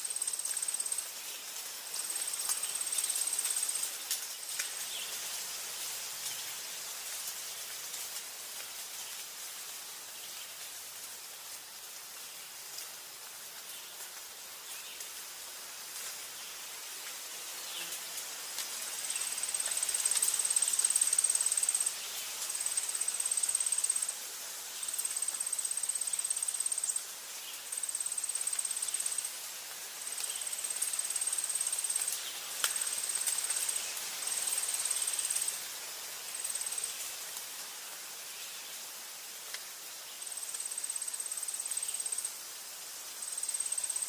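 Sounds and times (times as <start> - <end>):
cricket-like insect trilling: 0.0 - 1.1, 19.1 - 24.2, 24.8 - 27.1, 27.7 - 29.3, 30.1 - 35.6, 40.2 - 42.4, 43.2 - 44.0
forest ambience hiss: 0.0 - 44.0.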